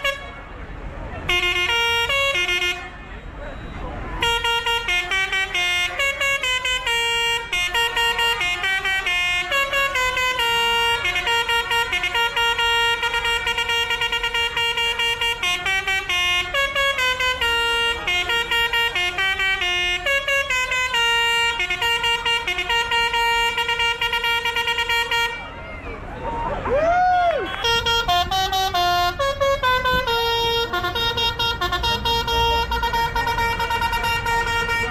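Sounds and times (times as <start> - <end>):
musical vehicle horn tune: 0.0 - 25.6, 27.3 - 34.9.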